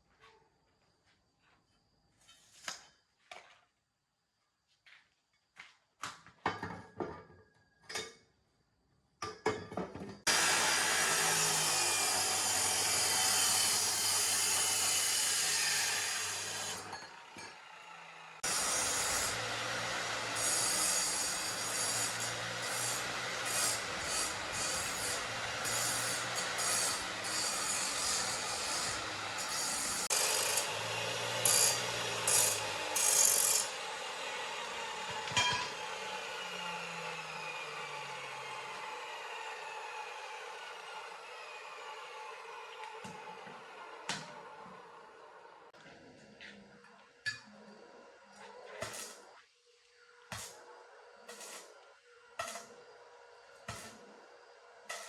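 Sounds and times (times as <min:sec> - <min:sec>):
power tool abrading a surface: 0:10.3 - 0:45.0.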